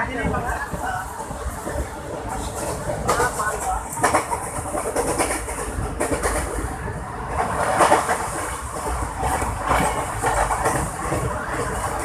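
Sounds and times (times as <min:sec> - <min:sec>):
passenger train running: 0:00.0 - 0:12.0.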